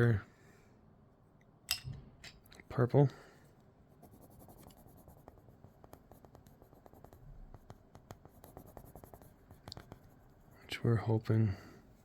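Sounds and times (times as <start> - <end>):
pencil scratching on paper: 3.9 - 10.8.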